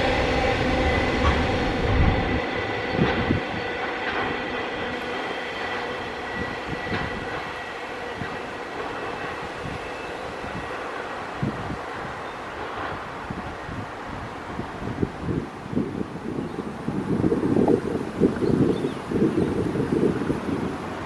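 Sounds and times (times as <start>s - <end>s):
freight train wagons rolling: 0.0s - 15.4s.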